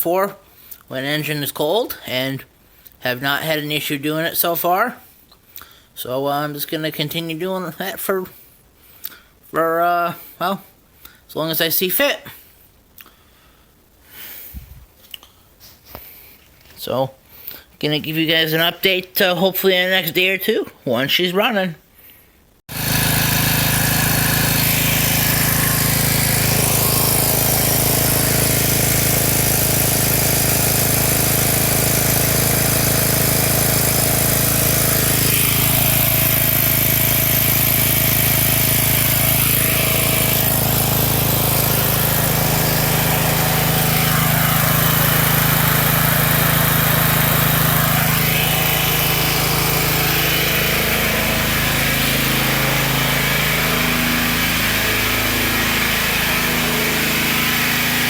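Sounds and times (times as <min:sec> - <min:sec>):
generator engine humming: 0:22.7 - 0:58.0.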